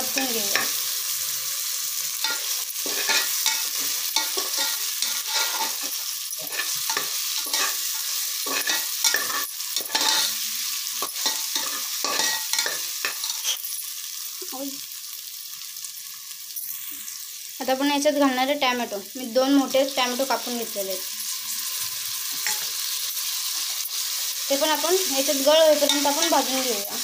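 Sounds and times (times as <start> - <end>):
vegetables sizzling in hot oil: 0.0 - 27.0.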